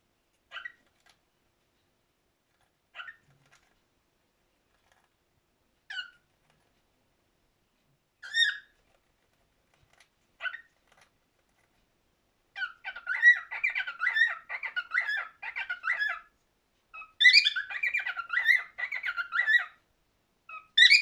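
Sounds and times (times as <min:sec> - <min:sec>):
cockatiel singing: 0:00.5 - 0:00.8, 0:02.9 - 0:03.3, 0:05.9 - 0:06.3, 0:08.2 - 0:08.8, 0:10.4 - 0:10.8, 0:12.5 - 0:19.8, 0:20.5 - 0:21.0.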